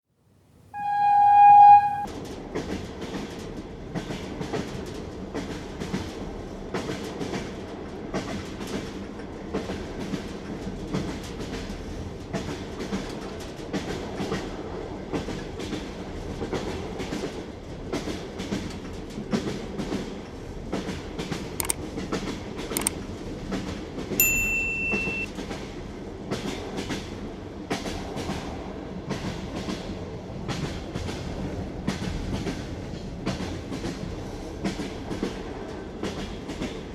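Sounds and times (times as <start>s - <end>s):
high steady tone: 0.8s - 2.1s, 24.2s - 25.3s.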